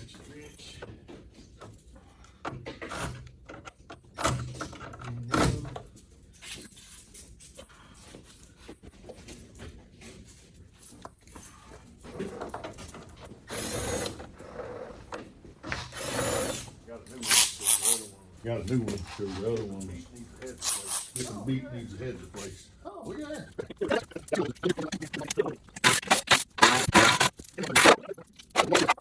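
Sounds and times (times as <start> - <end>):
metal parts clanking: 17.1 - 19.2, 19.8 - 21.5, 23.7 - 29.0.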